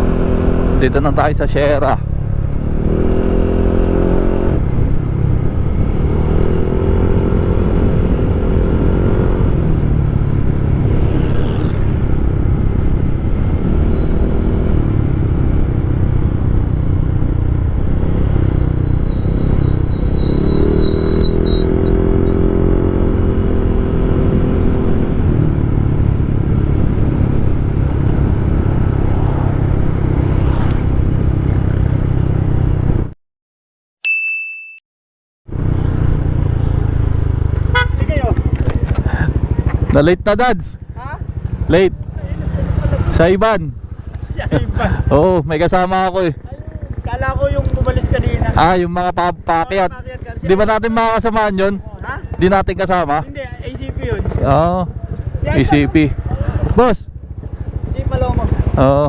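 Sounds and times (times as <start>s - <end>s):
wind and road noise: 0.0s - 33.2s, 35.5s - 59.0s
scooter engine revving: 2.4s - 32.3s, 35.5s - 40.1s, 40.8s - 45.4s, 51.9s - 59.0s.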